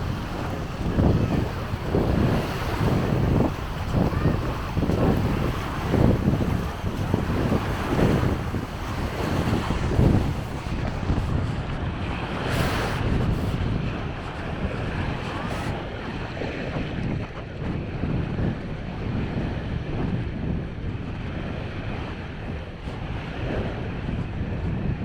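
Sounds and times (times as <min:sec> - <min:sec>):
sea waves washing onto beach: 0:00.0 - 0:20.0
wind buffeting microphone: 0:00.0 - 0:25.0.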